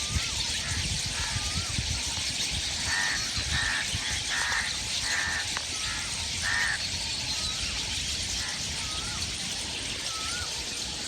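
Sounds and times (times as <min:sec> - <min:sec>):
crow cawing: 0:02.9 - 0:06.8
bird wavering whistle: 0:10.1 - 0:10.6.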